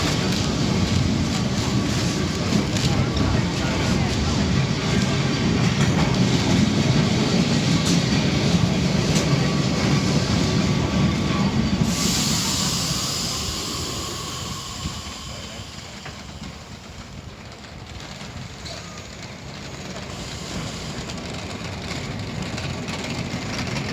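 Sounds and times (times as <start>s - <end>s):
tram rumbling on rails: 0.0s - 23.9s
hiss: 9.2s - 17.6s, 20.1s - 22.2s.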